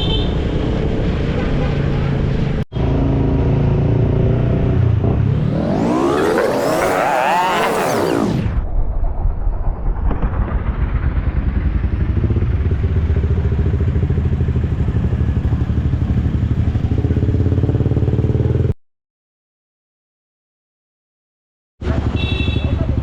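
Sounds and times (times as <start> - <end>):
engine running with pulsing beat: 2.8 - 8.6.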